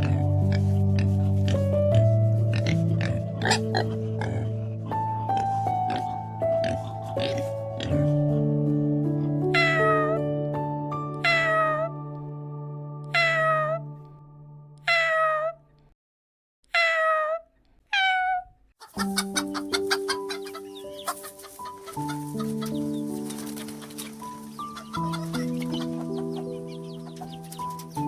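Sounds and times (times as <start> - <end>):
soft piano music: 0.0 - 14.8, 18.9 - 28.0
cat meowing: 9.6 - 10.2, 11.2 - 11.9, 13.1 - 13.8, 14.8 - 15.6, 16.7 - 18.5.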